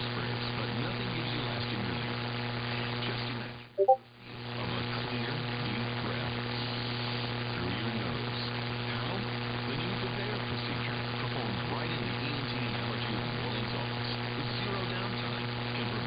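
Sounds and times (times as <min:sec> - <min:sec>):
radio static hum: 0:00.0 - 0:03.6, 0:04.3 - 0:16.0
quick beeps: 0:03.8 - 0:04.0.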